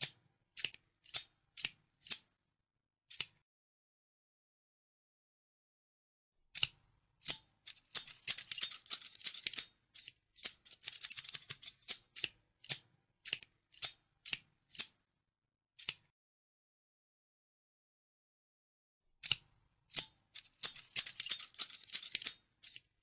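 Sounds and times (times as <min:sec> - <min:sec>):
scissors snipping: 0:00.0 - 0:02.3, 0:03.1 - 0:03.4, 0:06.5 - 0:15.0, 0:15.8 - 0:16.1, 0:19.2 - 0:22.9.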